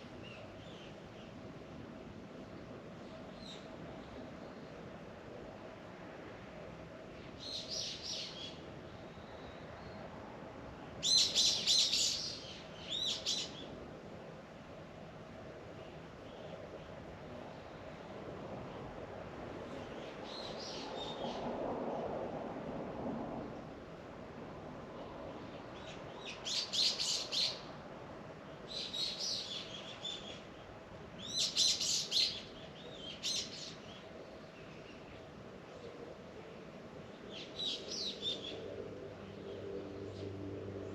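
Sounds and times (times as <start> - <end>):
faint outdoor background: 0.0 - 40.9
songbird singing: 7.3 - 10.1, 11.0 - 13.8, 19.7 - 21.4, 25.0 - 27.8, 28.4 - 40.9.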